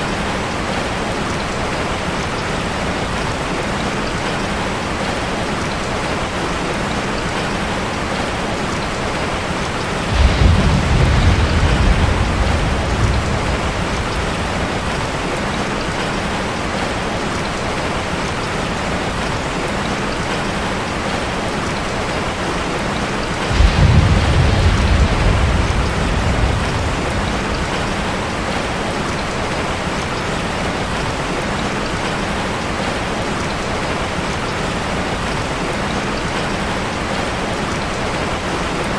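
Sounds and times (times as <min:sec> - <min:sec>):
rain drumming on a metal roof: 0:00.0 - 0:38.9
thunder rolling: 0:09.7 - 0:16.6, 0:23.3 - 0:29.8.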